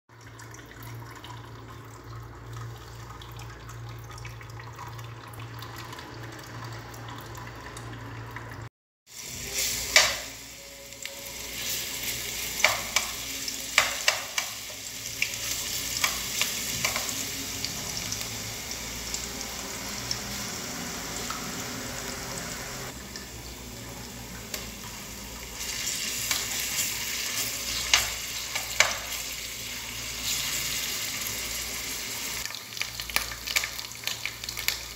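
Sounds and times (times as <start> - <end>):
paste sizzling in hot oil: 9.1 - 23.0.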